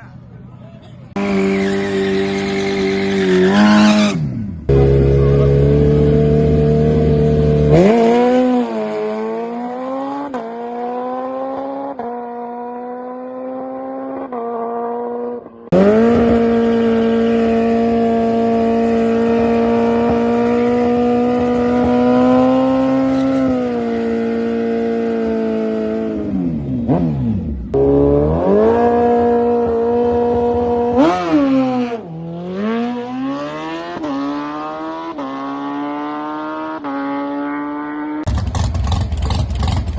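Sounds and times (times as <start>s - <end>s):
drag racing car engines revving: 1.0s - 14.9s, 15.7s - 39.9s
loud steady engine note: 4.4s - 7.9s.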